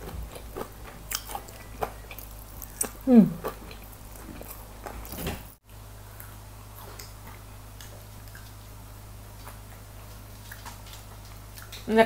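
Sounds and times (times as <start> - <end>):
person chewing crispy food: 0.0 - 11.9
steady low hum: 0.0 - 12.0.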